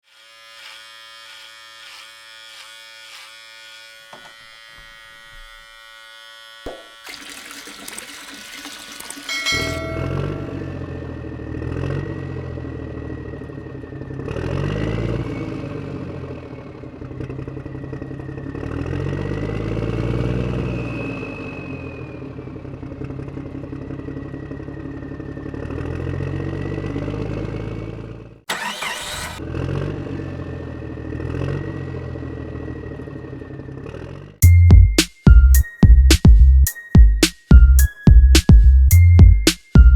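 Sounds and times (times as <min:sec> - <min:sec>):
engine revving: 0:09.8 - 0:34.4.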